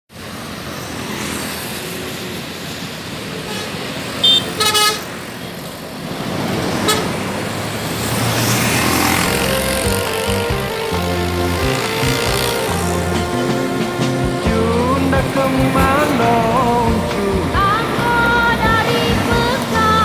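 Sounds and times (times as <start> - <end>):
road traffic passing: 0.1 - 20.0
car horn toots: 3.5 - 5.0.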